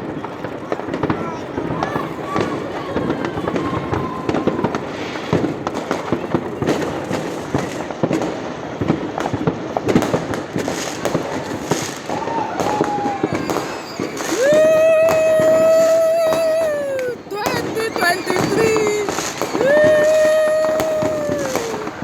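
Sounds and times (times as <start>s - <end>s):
fireworks and firecrackers bangs: 0.0s - 22.0s.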